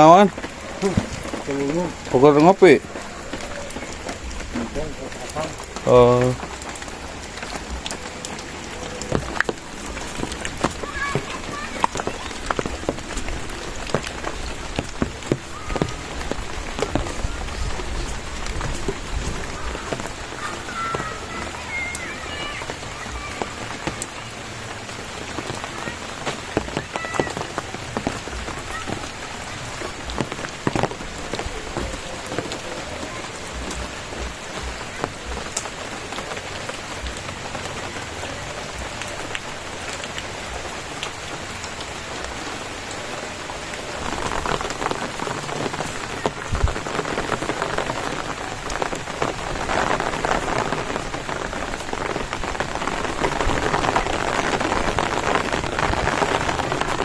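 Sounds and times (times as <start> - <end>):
raindrops hitting close by: 0.0 - 57.0
steady rain falling: 0.0 - 57.0.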